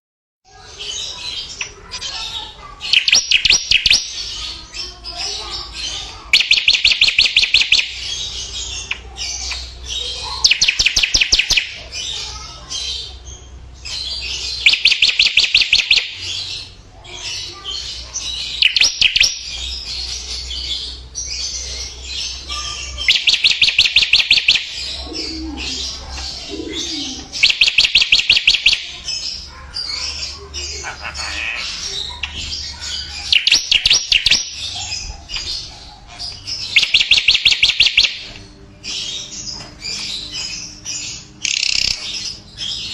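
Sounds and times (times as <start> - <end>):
soft bird chirping and twittering: 0.5 - 42.9.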